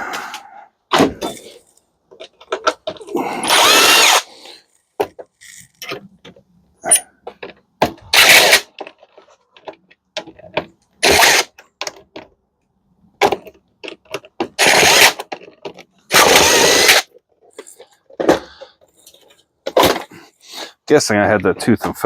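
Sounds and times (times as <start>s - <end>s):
metal parts clicking and knocking: 1.2s - 3.8s, 13.2s - 20.1s
power drill bursts: 3.4s - 4.3s, 8.1s - 8.7s, 11.0s - 11.5s, 14.6s - 15.2s, 16.1s - 17.1s.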